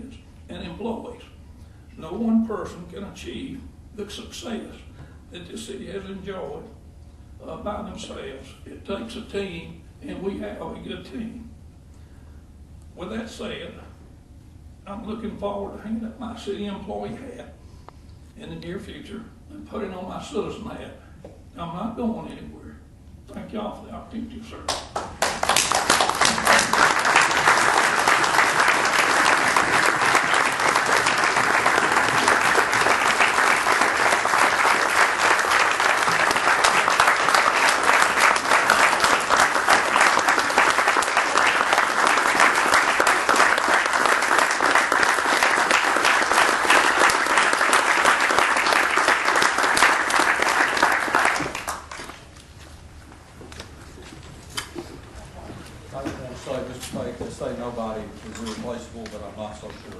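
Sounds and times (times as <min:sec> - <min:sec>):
audience applauding: 0:24.7 - 0:52.2.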